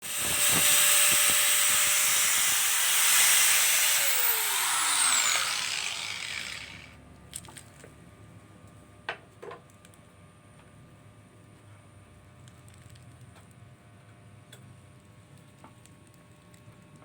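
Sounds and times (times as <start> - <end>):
electric drill whirring: 0.0 - 6.9.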